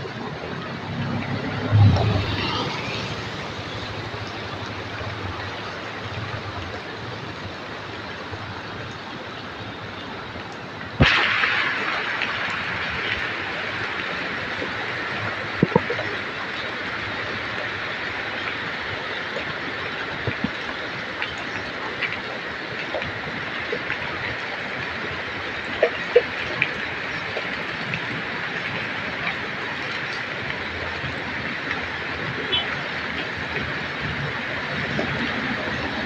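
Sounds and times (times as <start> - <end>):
drips and ticks: 0.0 - 36.0
heavy rain: 0.0 - 36.0.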